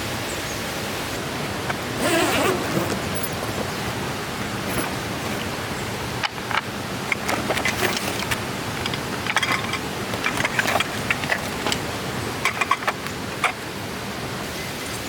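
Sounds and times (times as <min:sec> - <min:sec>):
stream rushing: 0:00.0 - 0:15.0
gear clicking and clinking: 0:01.7 - 0:03.7, 0:04.6 - 0:05.1, 0:06.2 - 0:13.7.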